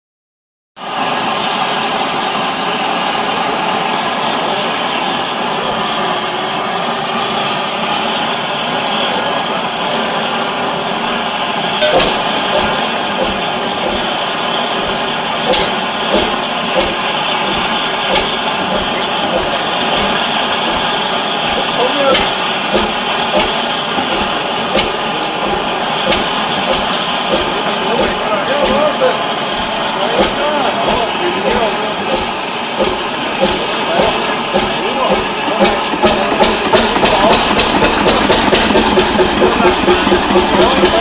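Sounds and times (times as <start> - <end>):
diesel engine running: 0.8 - 41.0
sharp knocks: 11.8 - 14.1, 14.8 - 28.9.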